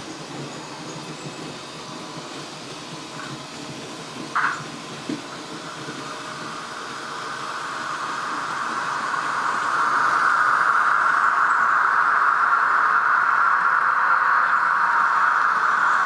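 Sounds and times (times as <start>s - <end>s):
model locomotive sound burst: 0.0s - 16.0s.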